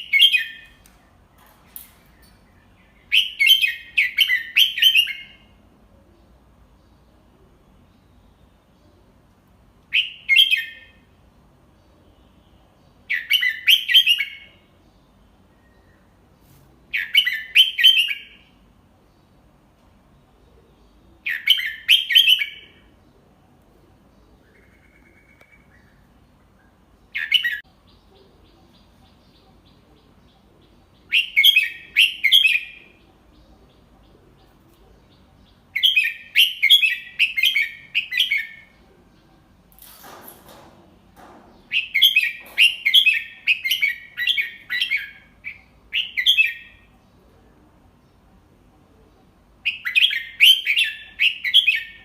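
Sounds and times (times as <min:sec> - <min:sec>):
bird singing whistled phrases: 0:03.1 - 0:05.4, 0:09.9 - 0:10.9.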